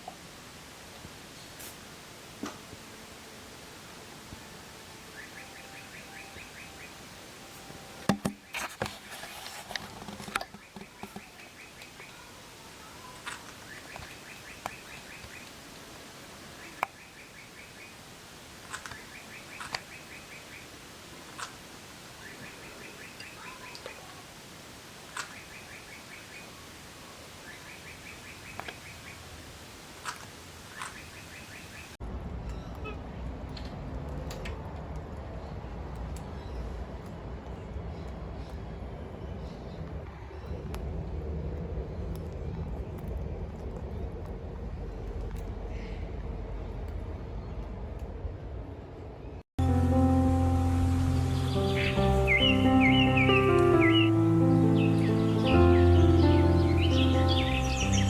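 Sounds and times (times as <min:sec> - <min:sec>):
bird trilling chirps: 0:05.2 - 0:07.0, 0:51.1 - 0:58.0
clicks and rustles: 0:08.0 - 0:11.5.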